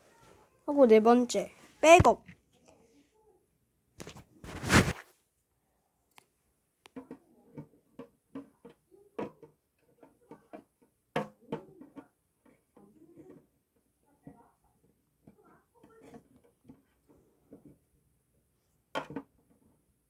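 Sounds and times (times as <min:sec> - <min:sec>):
items knocking and rustling: 0:04.0 - 0:05.1.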